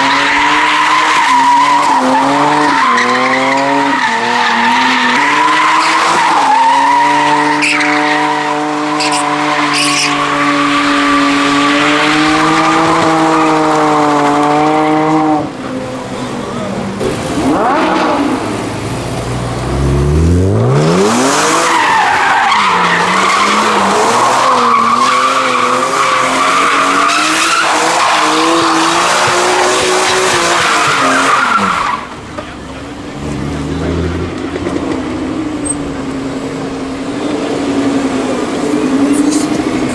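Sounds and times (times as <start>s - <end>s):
tyres squealing: 0.0s - 13.9s, 20.8s - 37.0s
car engine revving: 0.0s - 39.9s.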